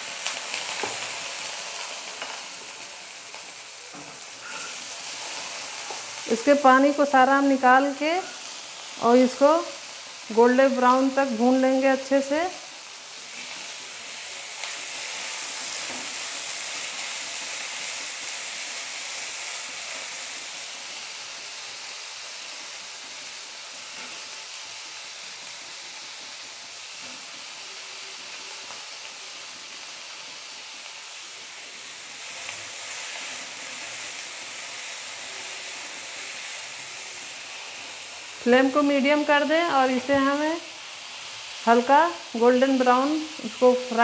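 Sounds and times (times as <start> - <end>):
potatoes sizzling in oil: 0.0 - 44.0.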